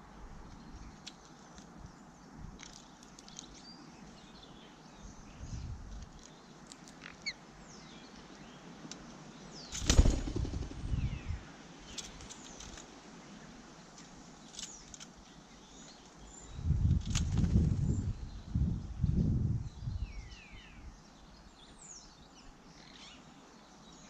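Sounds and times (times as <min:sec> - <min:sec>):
bird wings flapping: 0:09.7 - 0:11.2, 0:17.0 - 0:17.9
faint high bird chirps: 0:18.0 - 0:24.0.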